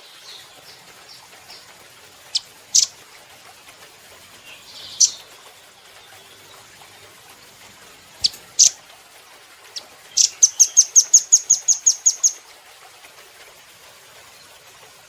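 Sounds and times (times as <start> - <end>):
bird calling with high trill: 10.2 - 12.4.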